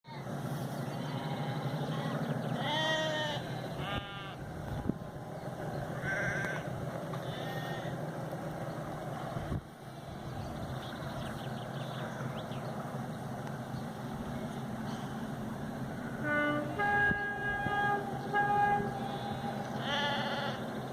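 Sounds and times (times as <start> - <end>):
sheep bleating: 0.1 - 0.3, 0.9 - 4.4, 6.0 - 8.0, 18.6 - 20.7
low rumble: 3.4 - 20.9.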